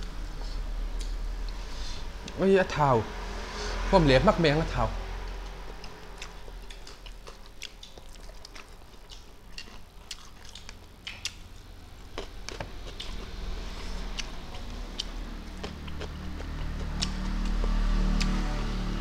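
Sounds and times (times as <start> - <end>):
low steady hum: 0.0 - 19.0
chewing and lip smacking: 5.7 - 18.5.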